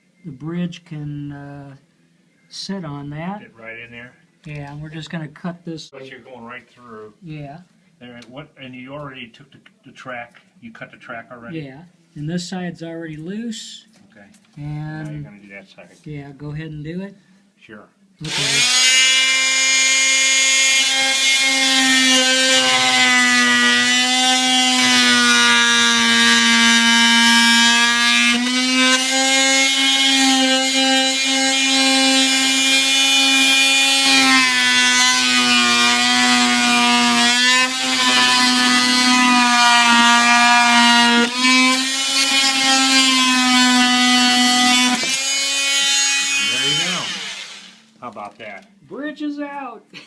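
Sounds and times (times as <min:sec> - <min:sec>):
power tool motor whine: 0:18.2 - 0:26.5, 0:44.6 - 0:47.8.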